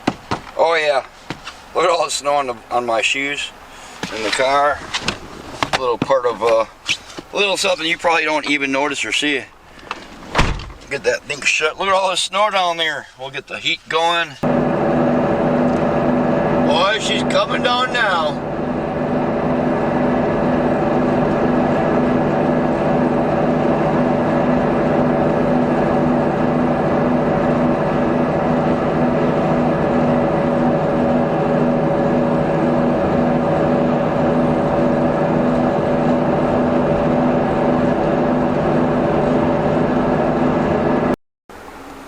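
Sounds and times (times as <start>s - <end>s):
car engine idling: 14.4s - 42.0s
car heater blower fan: 14.4s - 42.0s.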